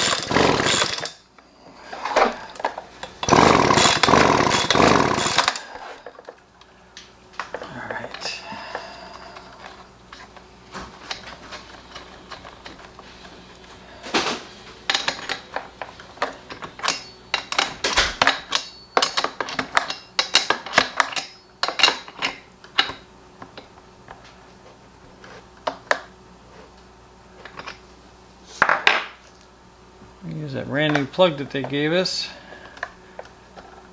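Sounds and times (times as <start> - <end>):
metal tools clinking: 14.9 - 15.6, 16.2 - 22.9.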